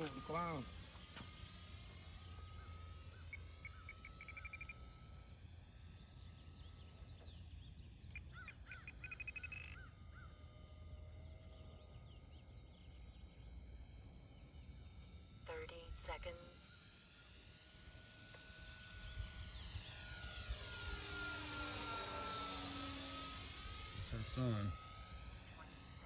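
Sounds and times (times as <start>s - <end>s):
model airplane engine drone: 0.0s - 26.0s
birds chirping: 2.1s - 5.0s, 6.0s - 15.0s
bird trills: 2.2s - 5.0s, 6.2s - 13.3s.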